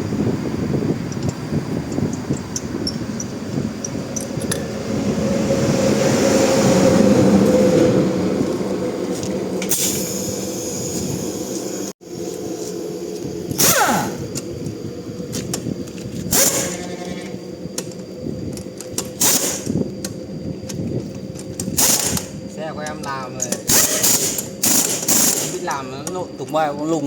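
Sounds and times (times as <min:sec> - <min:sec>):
steady machine hum: 0:00.0 - 0:27.0
tool spinning down whine: 0:02.2 - 0:27.0
pneumatic tool air hiss: 0:09.6 - 0:11.8, 0:13.6 - 0:14.4, 0:16.3 - 0:17.2, 0:19.0 - 0:19.8, 0:21.6 - 0:22.4, 0:23.5 - 0:25.7.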